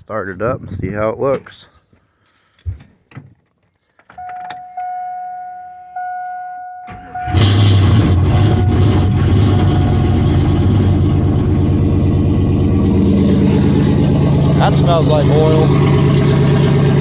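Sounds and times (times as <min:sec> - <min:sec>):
electronic warning chime: 0:04.2 - 0:07.4
truck engine cranking and running: 0:06.9 - 0:17.0.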